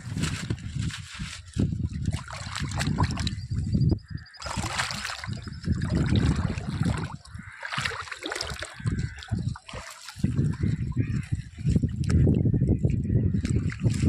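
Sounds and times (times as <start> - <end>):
sea water sloshing and splashing: 0.0 - 12.4, 13.4 - 14.0.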